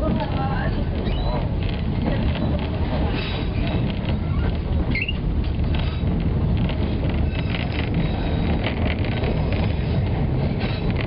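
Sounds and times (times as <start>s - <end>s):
train running low rumble: 0.0s - 11.0s
brief high squeak: 4.9s - 5.2s.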